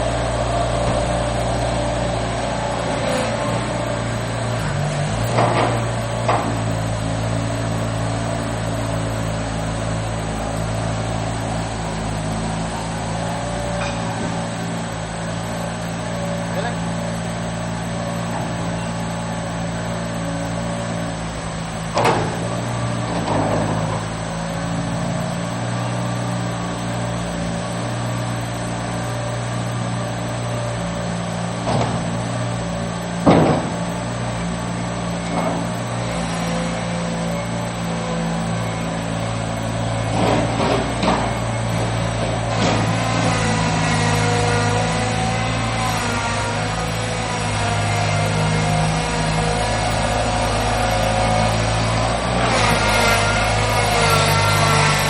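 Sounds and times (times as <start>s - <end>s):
skid steer engine running: 0.0s - 55.0s
sharp clunks: 33.2s - 34.0s.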